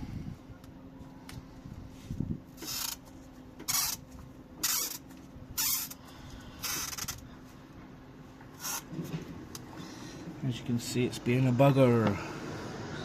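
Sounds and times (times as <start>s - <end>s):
rubber hose scraping on metal: 2.6s - 3.0s, 3.6s - 4.0s, 4.6s - 5.0s, 5.6s - 6.0s, 8.6s - 9.2s.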